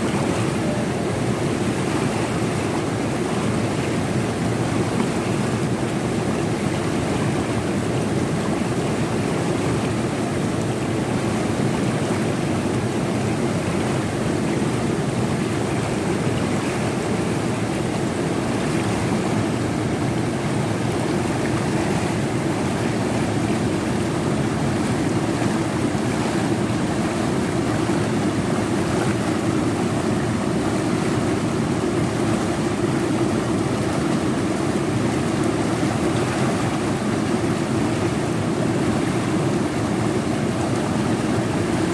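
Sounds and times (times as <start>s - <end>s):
river water rushing over rocks: 0.0s - 41.9s.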